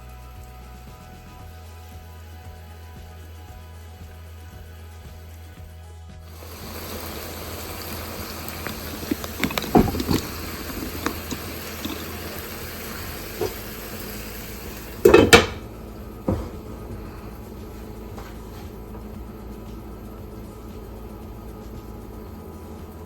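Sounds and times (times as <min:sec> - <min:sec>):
background music: 0:00.0 - 0:23.0
water running: 0:06.3 - 0:23.0
cookware clinking and knocking: 0:08.0 - 0:13.7, 0:15.0 - 0:15.7.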